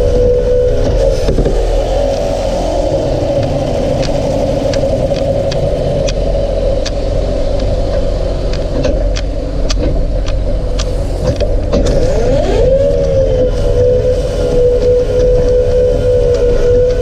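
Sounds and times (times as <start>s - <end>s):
rising whine: 0.0s - 17.0s
tractor engine running: 0.0s - 17.0s
sharp clicks and knocks: 3.4s - 12.0s.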